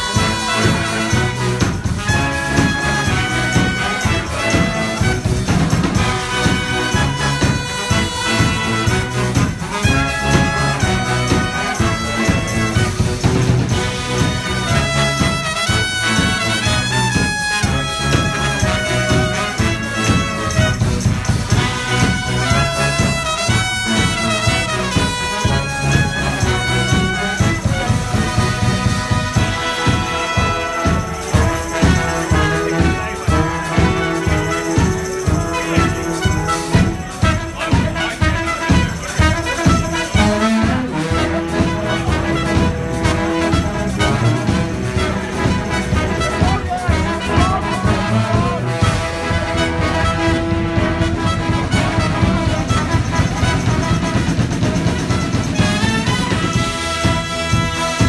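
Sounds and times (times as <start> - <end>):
brass band playing: 0.0 - 58.0.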